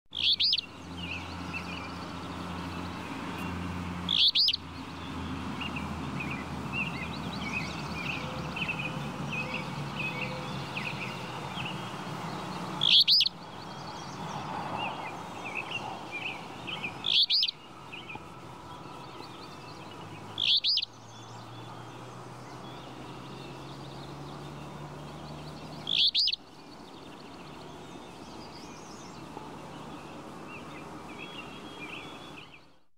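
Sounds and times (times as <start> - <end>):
birds twittering: 0.1 - 32.8
flycatcher calling: 0.1 - 32.8.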